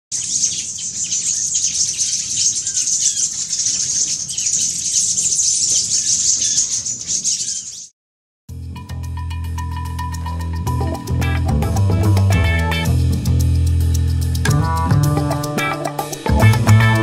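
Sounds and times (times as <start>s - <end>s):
birds chirping and twittering: 0.1s - 7.9s
short lower bird calls: 0.2s - 7.9s.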